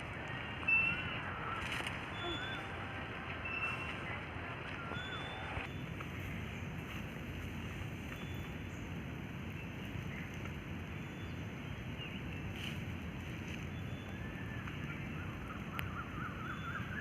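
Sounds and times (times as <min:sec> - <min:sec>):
outdoor rushing noise: 0:00.0 - 0:09.4
faint high chirps: 0:00.3 - 0:05.9.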